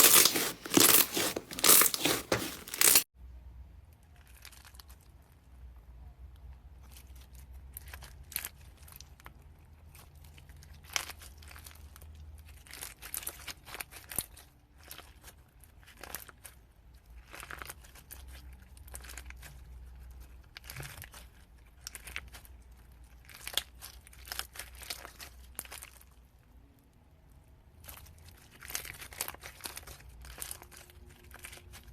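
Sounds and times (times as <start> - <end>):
hands squishing slime: 0.0 - 3.0.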